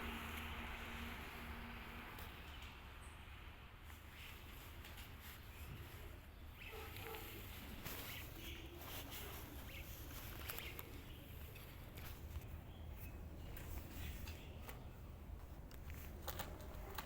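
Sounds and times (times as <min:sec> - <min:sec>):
low steady hum: 0:00.0 - 0:06.6
pigeons clicking and scuffling: 0:03.9 - 0:17.0.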